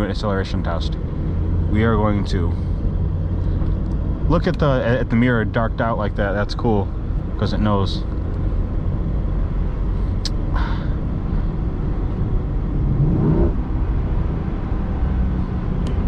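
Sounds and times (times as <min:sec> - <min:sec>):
car cabin engine and tyre drone: 0:00.0 - 0:16.0
brief rising tone: 0:12.8 - 0:13.6.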